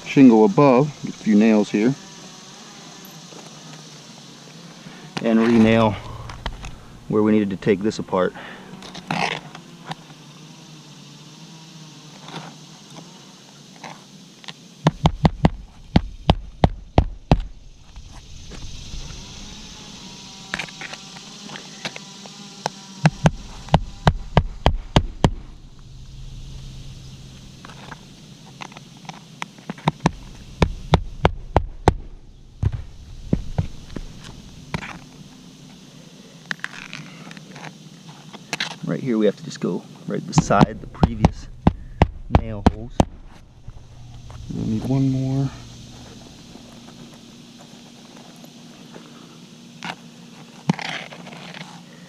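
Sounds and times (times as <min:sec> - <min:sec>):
hammer driving nails into shingles: 0:40.4 - 0:43.2.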